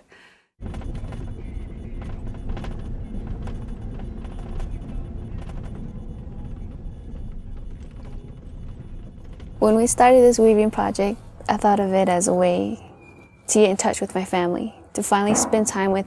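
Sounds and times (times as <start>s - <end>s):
truck engine rumble: 0.6s - 12.8s.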